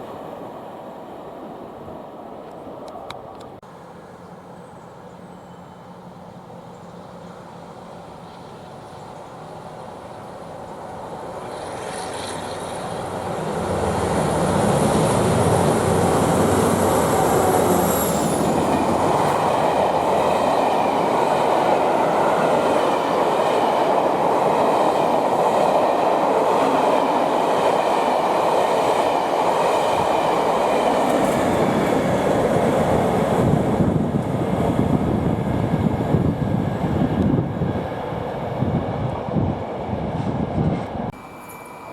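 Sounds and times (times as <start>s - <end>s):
train rumbling past: 0.0s - 41.9s
faint high whine: 41.1s - 41.9s.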